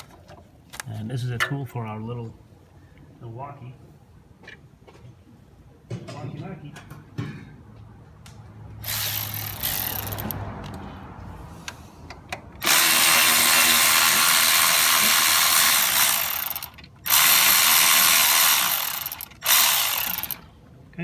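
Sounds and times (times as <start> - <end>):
power ratchet running: 8.8 - 10.4, 12.6 - 20.5.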